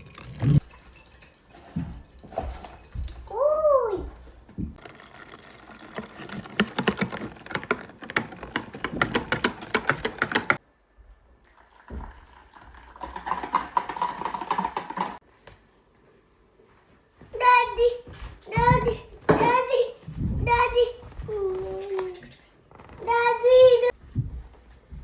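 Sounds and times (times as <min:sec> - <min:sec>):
rapid clicking and tapping: 0:04.8 - 0:10.6, 0:13.0 - 0:15.2.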